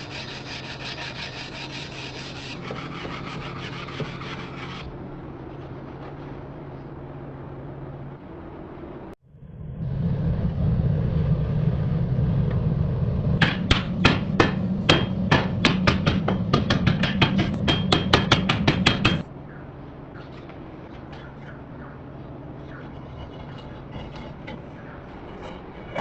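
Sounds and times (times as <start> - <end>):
steady low rumble: 4.9 - 26.0
hammer striking steel on anvil: 13.4 - 19.3.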